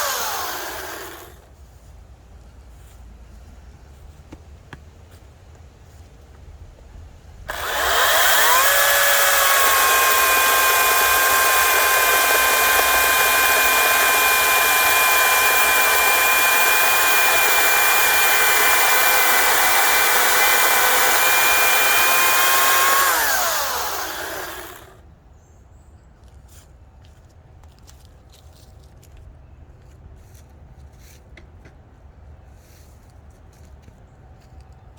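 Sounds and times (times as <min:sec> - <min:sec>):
battery chainsaw cutting wood: 0:00.0 - 0:01.5, 0:07.5 - 0:25.0.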